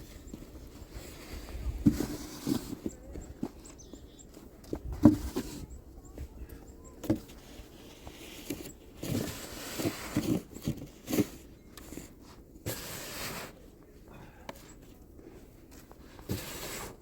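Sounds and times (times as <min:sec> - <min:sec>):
snow shovel scraping and knocking: 0:00.0 - 0:05.8, 0:07.0 - 0:13.8, 0:15.6 - 0:17.0.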